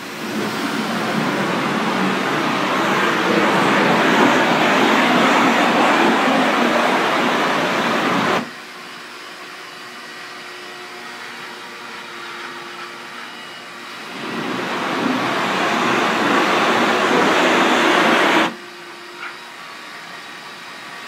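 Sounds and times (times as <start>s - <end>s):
pressure washer spray hissing: 0.0s - 8.5s
steady machine hum: 0.0s - 8.6s, 13.8s - 18.6s.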